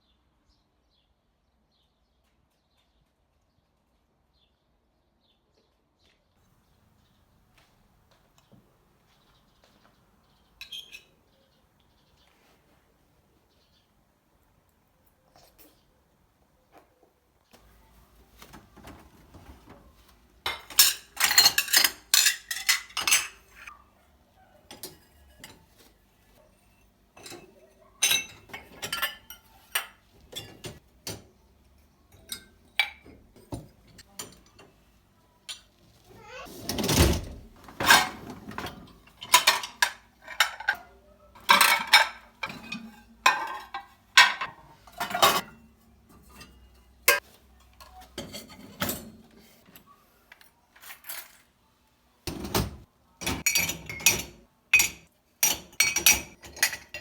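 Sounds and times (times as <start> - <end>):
dishes and cutlery clattering: 10.6 - 11.2, 17.6 - 23.8, 24.6 - 35.8, 36.5 - 49.9, 52.3 - 57.0.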